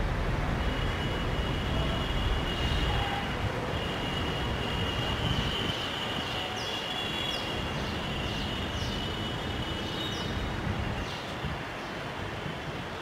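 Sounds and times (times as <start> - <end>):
steady rushing noise: 0.0 - 6.3.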